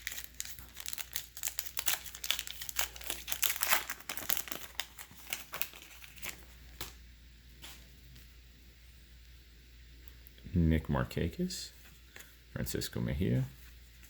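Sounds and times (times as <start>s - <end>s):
plastic wrapper tearing and crinkling: 0.0s - 7.0s.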